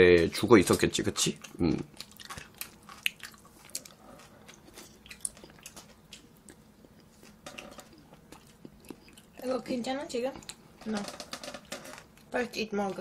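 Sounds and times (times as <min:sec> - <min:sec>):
person chewing noodles: 0:00.3 - 0:09.4.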